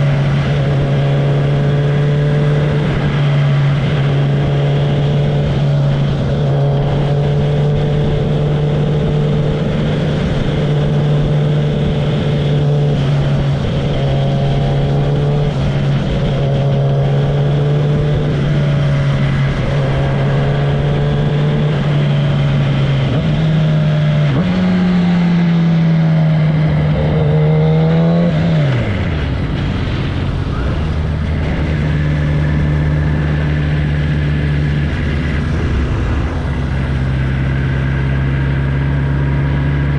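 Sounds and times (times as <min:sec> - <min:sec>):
wind noise: 0:00.0 - 0:25.8, 0:26.5 - 0:39.9
motorcycle engine: 0:00.0 - 0:39.9.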